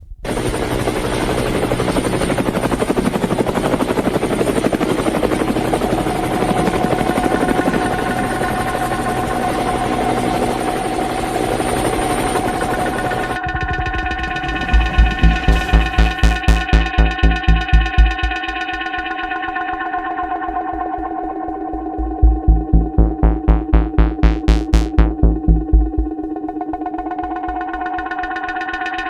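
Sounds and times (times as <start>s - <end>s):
helicopter rotor beats: 12.4s - 19.1s, 21.8s - 29.0s
steady mid-pitched tone: 13.4s - 18.9s, 21.5s - 26.2s.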